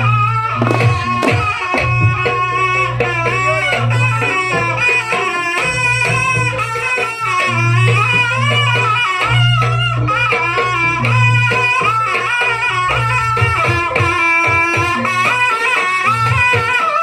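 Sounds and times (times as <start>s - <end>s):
drums and percussion: 0.0s - 17.0s
high wavering melody: 0.0s - 17.0s.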